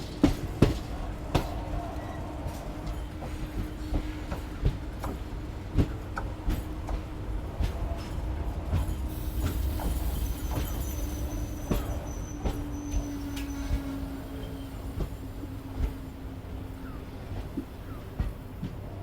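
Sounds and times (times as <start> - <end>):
train low hum: 0.0 - 19.0
high wheel squeal: 9.1 - 15.3.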